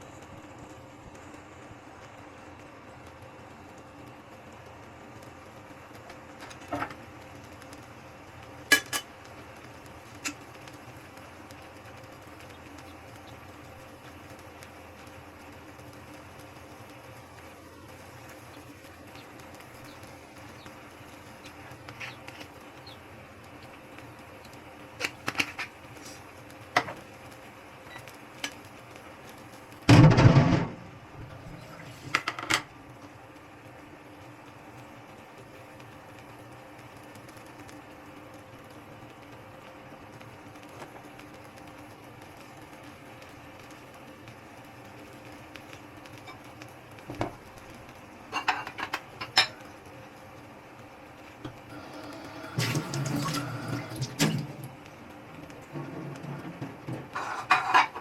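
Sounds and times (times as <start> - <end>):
low background hum: 0.0 - 58.0
utensils clinking against dishes: 8.7 - 9.1.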